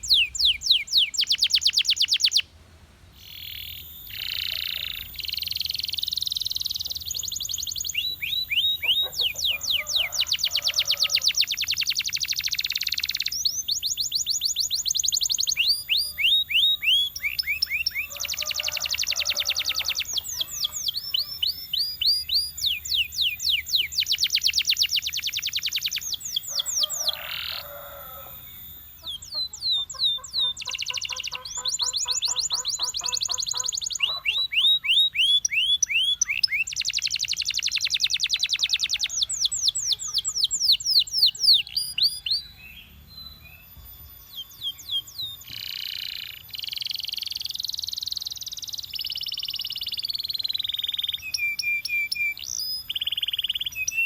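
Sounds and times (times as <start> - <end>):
canary trilling: 0.0 - 2.4, 3.2 - 42.7.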